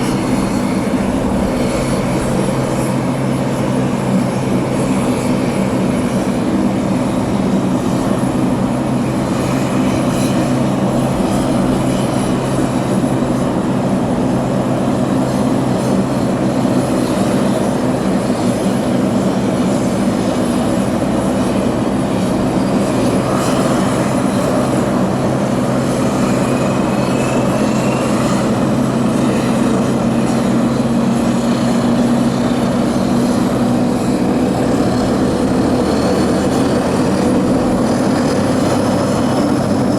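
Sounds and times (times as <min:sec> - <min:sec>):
propeller aircraft engines droning: 0:00.0 - 0:39.9.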